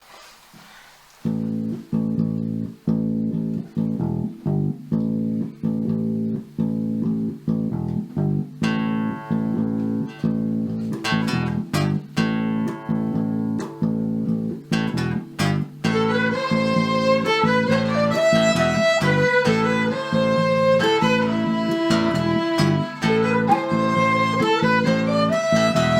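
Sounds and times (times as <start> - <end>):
guitar chords strummed: 1.3 - 25.9
fiddle-like melody: 14.8 - 25.9.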